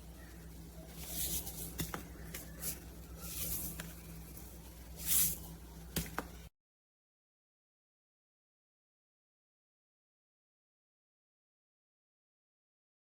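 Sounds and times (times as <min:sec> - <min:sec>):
low steady hum: 0:00.0 - 0:06.5
rustling handling noise: 0:00.4 - 0:06.4.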